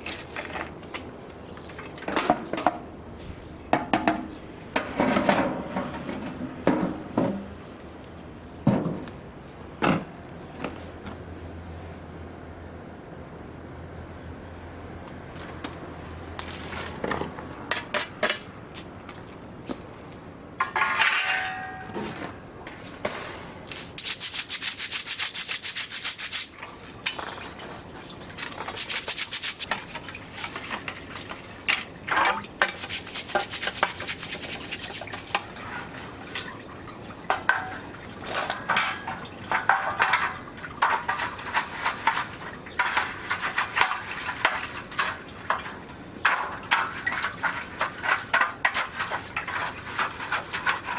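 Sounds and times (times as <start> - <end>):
metal utensils clinking and rattling: 20.6 - 22.4, 37.3 - 50.9
rapid scraping strokes: 24.0 - 26.6, 28.3 - 31.1, 32.7 - 36.0, 39.5 - 50.9.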